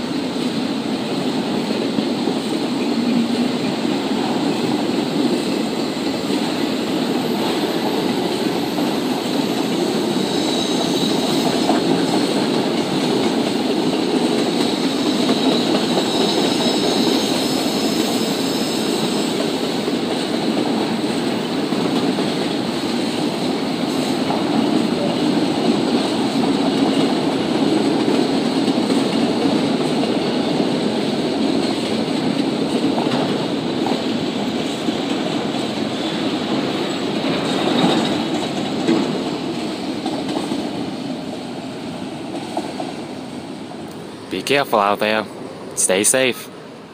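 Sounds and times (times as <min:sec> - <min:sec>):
freight train wheels rumbling on rail: 0:00.0 - 0:46.9
high wheel squeal: 0:08.4 - 0:12.3, 0:15.2 - 0:19.6
clatter over rail joints: 0:36.6 - 0:40.8.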